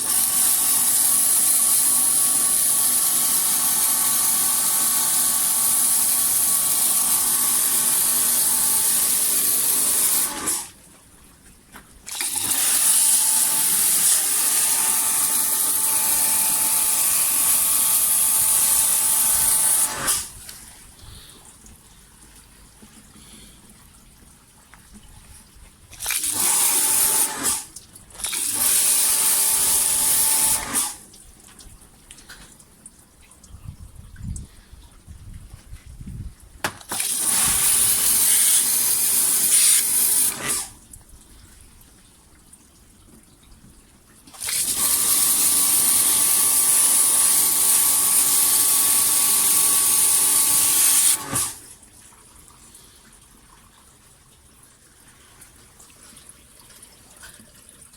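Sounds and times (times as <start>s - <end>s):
pressure washer water jet hissing: 0.0s - 10.7s, 12.1s - 20.3s, 26.0s - 31.0s, 36.9s - 40.7s, 44.4s - 51.6s
pump whining: 0.0s - 10.9s, 12.0s - 21.9s, 25.9s - 31.1s, 36.6s - 40.8s, 44.3s - 51.8s.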